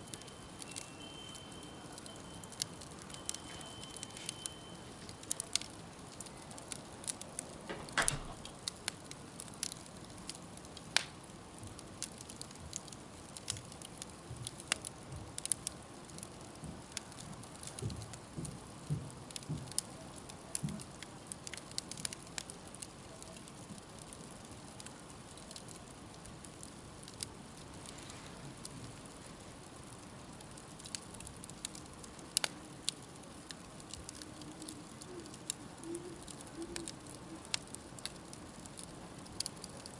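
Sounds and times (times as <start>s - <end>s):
campfire crackling and popping: 0.0s - 39.9s
low steady hiss: 0.0s - 39.9s.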